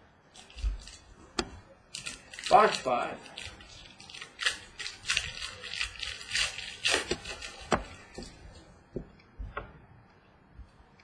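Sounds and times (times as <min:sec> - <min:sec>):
packaging crinkling and rustling: 0:00.3 - 0:08.7.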